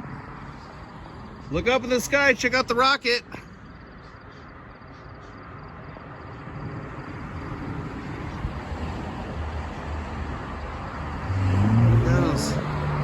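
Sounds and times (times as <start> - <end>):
road noise hiss: 0.0 - 13.0
vehicle engine rumbling: 10.3 - 13.0.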